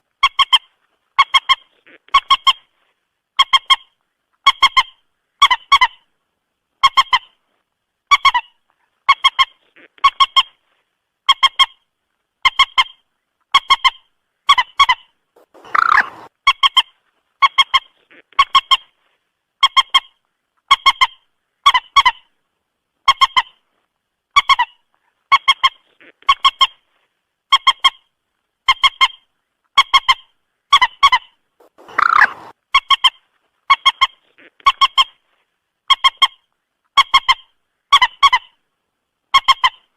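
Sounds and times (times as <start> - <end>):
moorhen calling: 14.5 - 16.3, 31.0 - 32.5.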